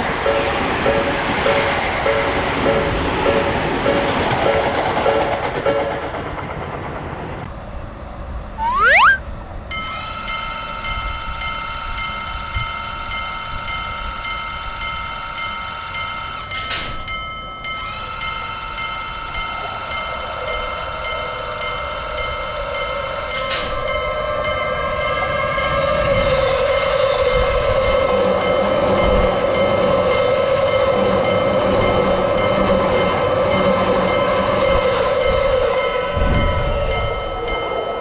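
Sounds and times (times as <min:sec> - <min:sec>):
short rising whistle: 0:08.6 - 0:09.2
electric train high whine: 0:09.5 - 0:38.0.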